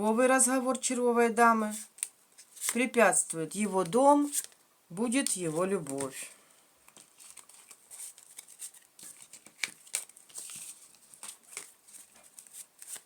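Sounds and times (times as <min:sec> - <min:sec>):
playing cards shuffling: 0:01.7 - 0:02.9, 0:06.9 - 0:13.0.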